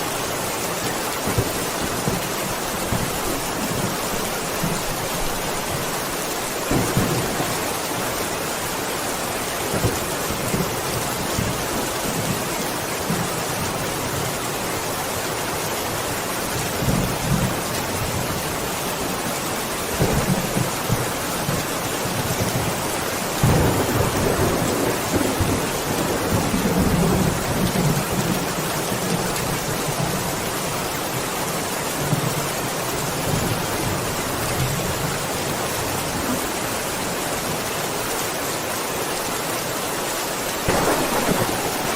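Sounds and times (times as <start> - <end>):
rain hissing: 0.0 - 14.3, 16.8 - 41.9
rolling thunder: 6.7 - 8.2, 40.7 - 41.9.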